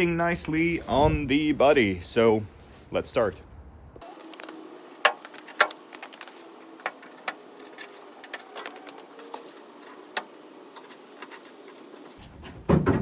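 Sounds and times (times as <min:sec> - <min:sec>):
light clicks and knocks: 0:04.2 - 0:12.2.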